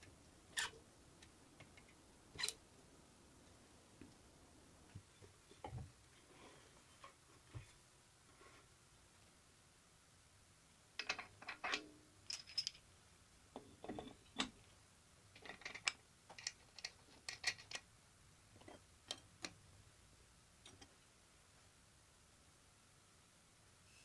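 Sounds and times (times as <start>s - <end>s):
small metal parts clinking: 11.0s - 12.8s.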